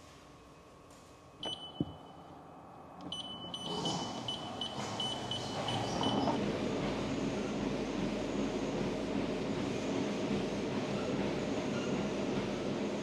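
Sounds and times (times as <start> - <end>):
held electronic beep: 1.4 - 2.2, 3.1 - 6.4.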